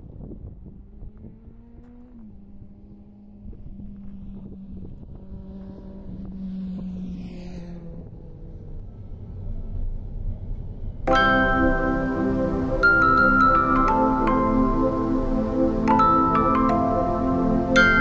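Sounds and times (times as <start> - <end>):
wind noise on microphone: 0.0 - 6.8
car engine and road rumble: 0.0 - 18.0
music with ringing notes: 11.1 - 18.0.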